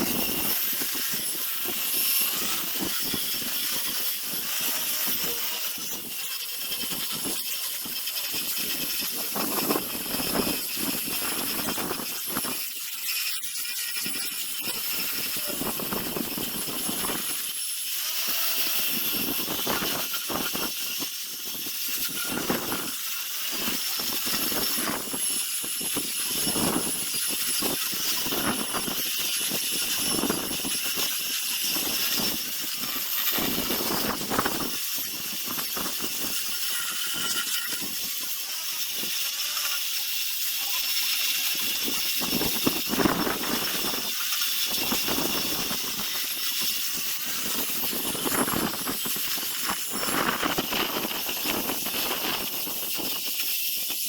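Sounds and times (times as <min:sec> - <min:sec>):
power sander grinding wood: 0:00.0 - 0:54.0.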